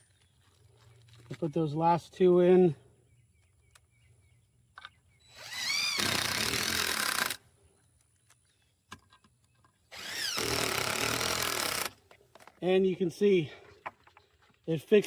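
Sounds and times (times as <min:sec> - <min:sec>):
cordless drill driving screws: 0:05.3 - 0:07.4, 0:09.9 - 0:12.0.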